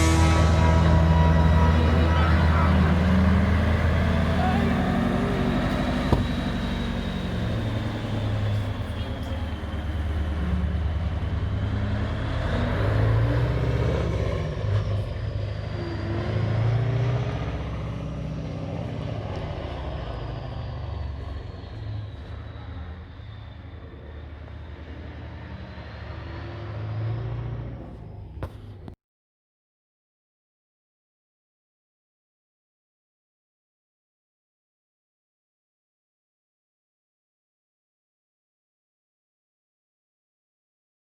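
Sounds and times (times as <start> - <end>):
thin high whine: 0.0 - 10.1
diesel truck engine rumbling: 0.0 - 29.0.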